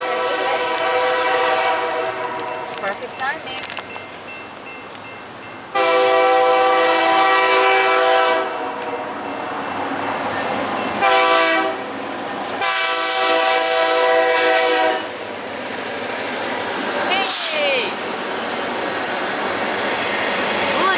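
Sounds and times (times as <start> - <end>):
locomotive air horn chord: 0.0 - 2.9, 5.7 - 9.2, 11.0 - 11.8, 12.6 - 15.2
train rumbling: 0.0 - 20.9.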